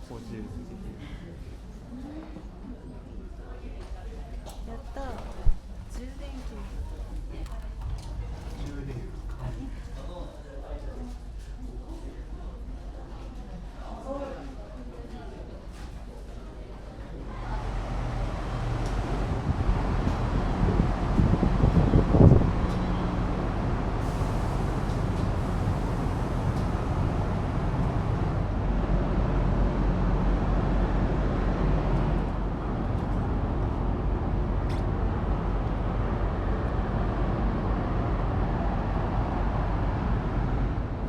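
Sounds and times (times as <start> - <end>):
ferry engines humming: 17.2 - 41.0.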